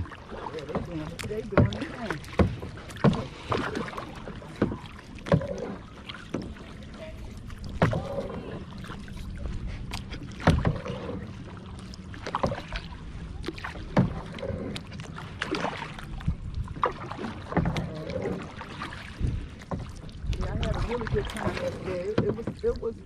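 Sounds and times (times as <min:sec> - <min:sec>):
paddle splashing water: 0:00.0 - 0:23.0.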